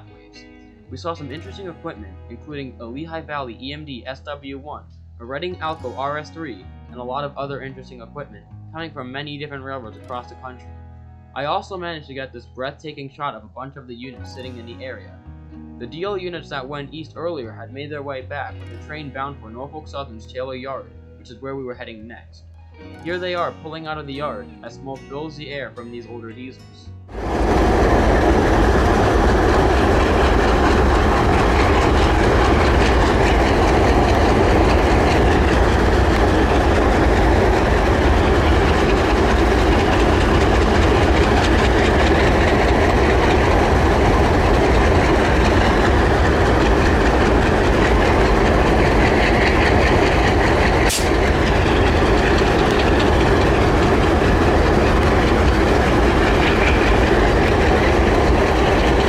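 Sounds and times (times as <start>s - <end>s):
diesel locomotive engines rumbling: 0.9s - 2.0s, 27.1s - 59.0s
train cars rolling: 1.0s - 1.7s, 27.1s - 59.0s.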